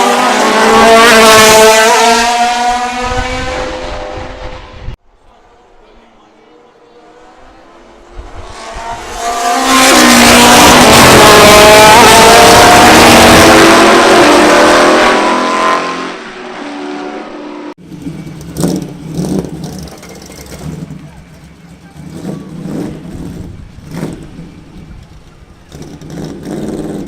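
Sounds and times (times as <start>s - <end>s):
race car passing at high revs: 0.0s - 5.0s, 6.8s - 20.0s
background noise: 0.0s - 27.0s.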